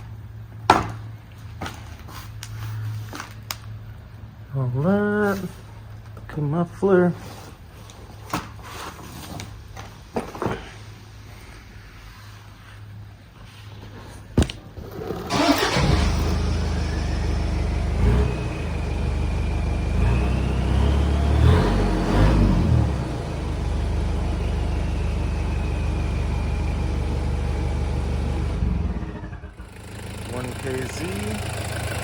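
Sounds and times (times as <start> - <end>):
diesel engine idling and revving: 15.0 - 32.0.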